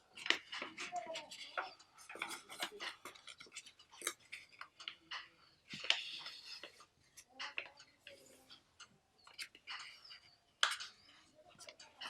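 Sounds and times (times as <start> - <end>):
paper crackling and clicking: 0.2 - 7.8.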